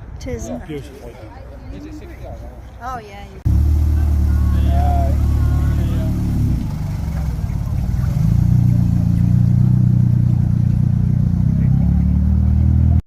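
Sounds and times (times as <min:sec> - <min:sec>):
car engine running: 0:03.5 - 0:13.0.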